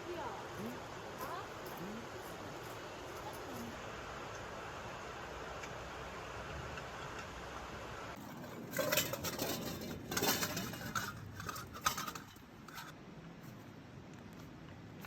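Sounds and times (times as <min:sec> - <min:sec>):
dishes and utensils clattering: 0:08.2 - 0:13.0.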